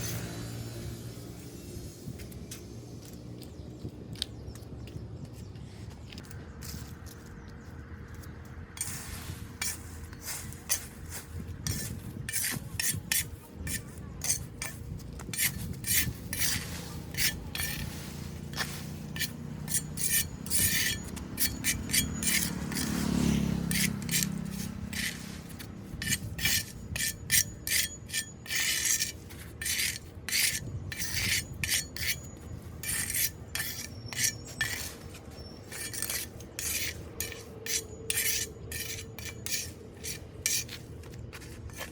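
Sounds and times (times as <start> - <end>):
debris scraped off drain: 15.4 - 23.1, 23.7 - 32.2.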